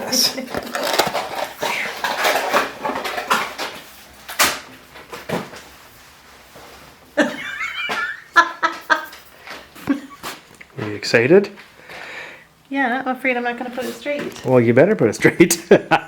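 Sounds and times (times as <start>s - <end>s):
parts rustling and clattering: 0.1s - 7.0s.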